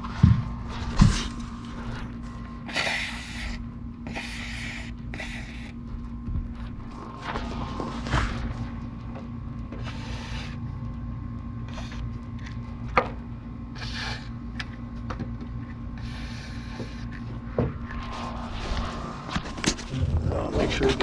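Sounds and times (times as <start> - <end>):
steady low hum: 0.0 - 21.0
aerosol spray can hissing: 2.7 - 5.8, 9.8 - 10.6, 11.7 - 12.0, 13.8 - 14.3, 16.0 - 17.1.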